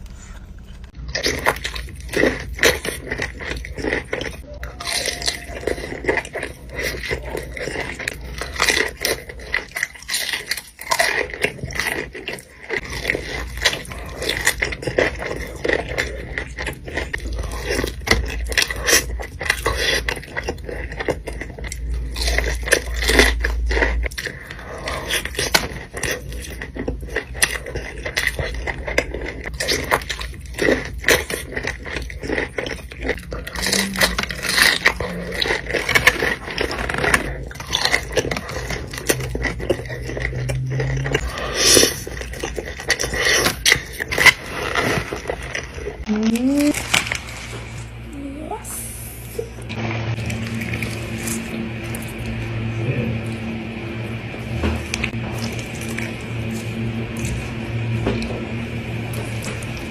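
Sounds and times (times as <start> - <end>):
chewing crunchy food: 0.0 - 47.9, 49.2 - 59.9
scraping of food wrapping: 41.2 - 48.0.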